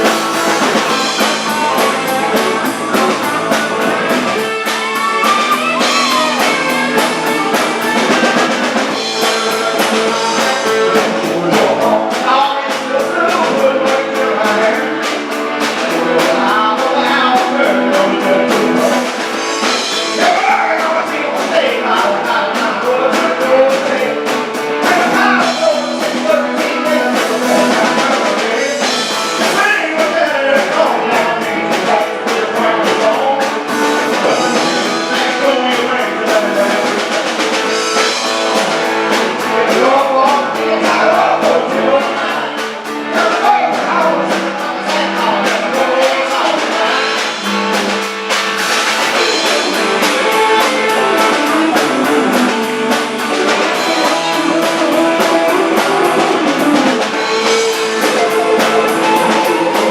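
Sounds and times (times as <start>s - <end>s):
drum kit with steady beat: 0.0s - 59.9s
electric guitar: 0.0s - 59.9s
person singing: 0.0s - 59.9s.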